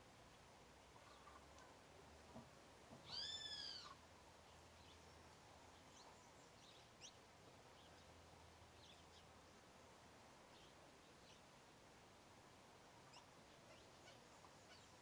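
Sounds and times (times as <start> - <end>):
bird arched call: 3.1 - 4.0.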